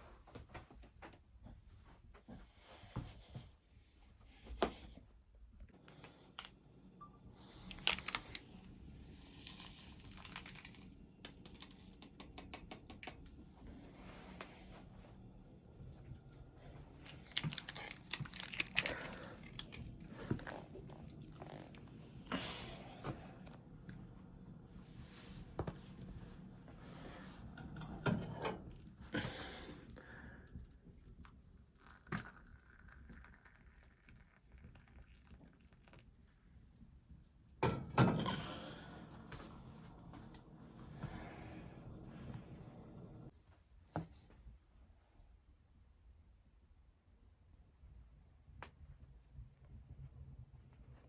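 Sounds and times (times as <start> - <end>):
crackly clicks: 7.6 - 8.5, 9.5 - 13.4, 17.0 - 21.8
crinkling and rustling handling: 7.6 - 12.2, 16.4 - 23.6
objects clattering: 17.0 - 21.8, 27.6 - 28.8.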